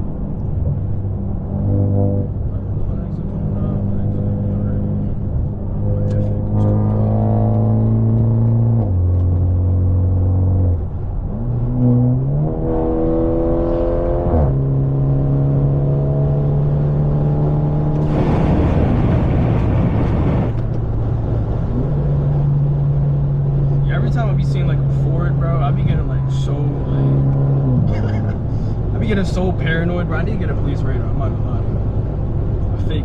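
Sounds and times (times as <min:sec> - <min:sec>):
car engine accelerating: 0:00.0 - 0:33.0
rushing noise: 0:18.0 - 0:21.1.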